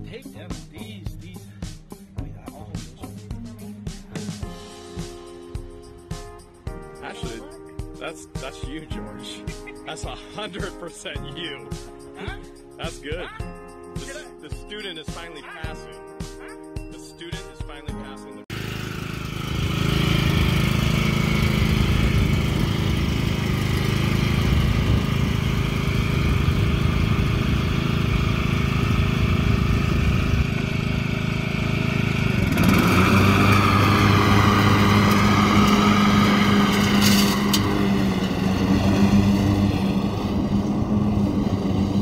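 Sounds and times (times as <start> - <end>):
lawn mower engine running: 18.5 - 42.0.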